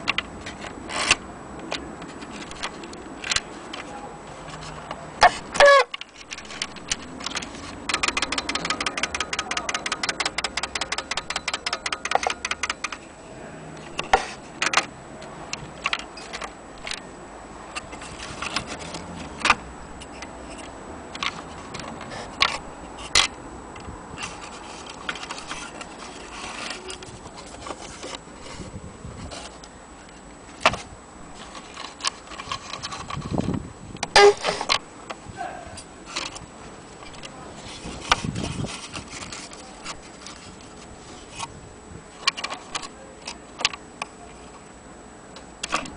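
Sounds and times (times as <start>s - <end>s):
cuckoo clock mechanism clicking: 5.2s - 13.0s, 34.0s - 34.8s.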